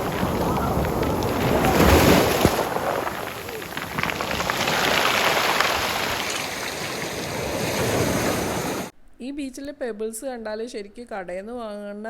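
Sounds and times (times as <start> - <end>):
pebbles rattling: 0.0 - 7.6
sea waves washing over pebbles: 0.0 - 8.9.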